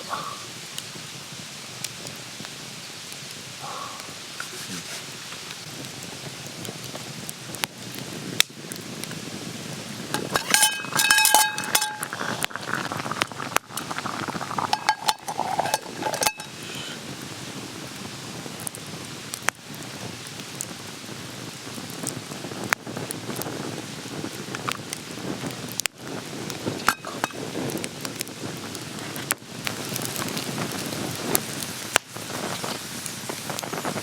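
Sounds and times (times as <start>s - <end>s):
steady hiss: 0.0s - 34.0s
metal cookware clinking: 10.2s - 12.5s, 14.6s - 16.9s, 26.9s - 27.4s.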